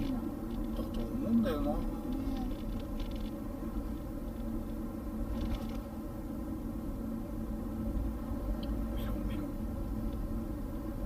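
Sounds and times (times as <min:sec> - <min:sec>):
faint rustles: 0:00.0 - 0:06.4
car road and engine noise: 0:00.0 - 0:11.0.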